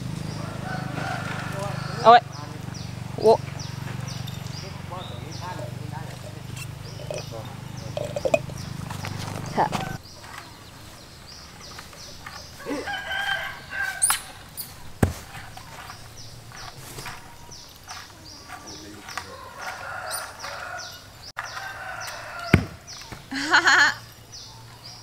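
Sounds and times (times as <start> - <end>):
roosters crowing: 0.0 - 24.6
sharp knocks: 15.0 - 17.2, 22.5 - 22.8.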